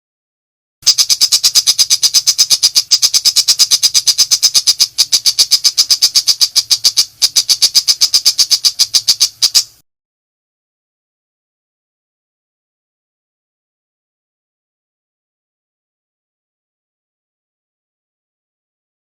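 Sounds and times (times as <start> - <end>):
bird rattling call: 0.8 - 9.8.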